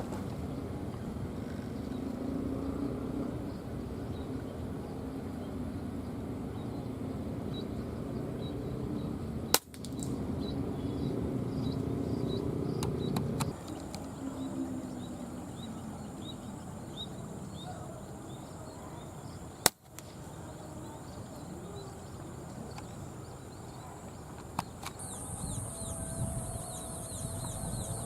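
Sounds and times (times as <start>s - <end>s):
outdoor background hiss: 0.0s - 28.0s
faint high chirps: 25.0s - 28.0s.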